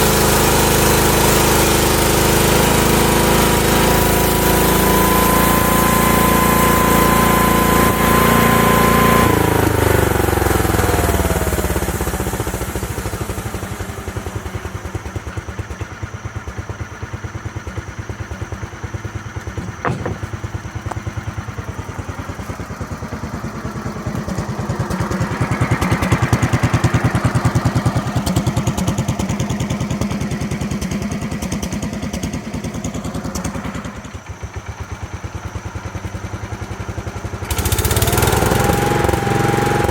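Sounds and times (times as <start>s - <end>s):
sawmill engine running: 0.0s - 31.1s.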